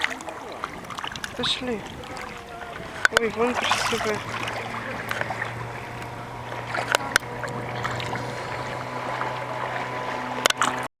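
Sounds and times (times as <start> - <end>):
low mechanical hum: 0.1 - 10.9
sharp clicks: 3.0 - 3.4, 6.8 - 7.6.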